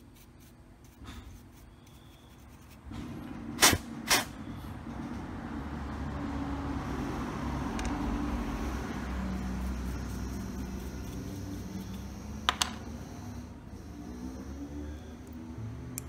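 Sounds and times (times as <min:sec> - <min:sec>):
steady low hum: 0:06.8 - 0:16.0.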